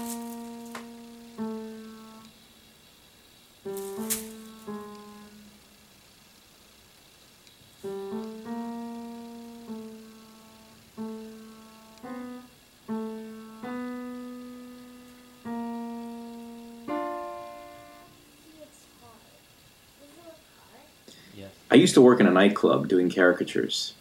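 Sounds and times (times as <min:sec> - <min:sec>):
slow piano melody: 0:00.0 - 0:02.4, 0:03.6 - 0:06.1, 0:07.7 - 0:19.3.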